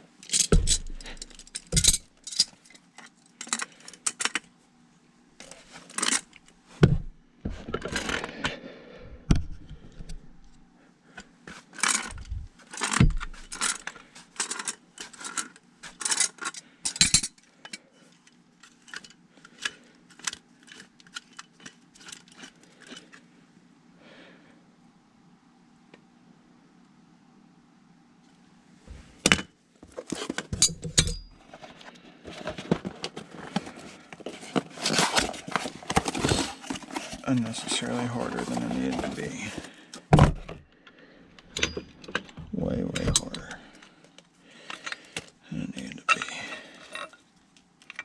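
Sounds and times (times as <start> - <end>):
hand tools clinking on metal: 46.1 - 47.2.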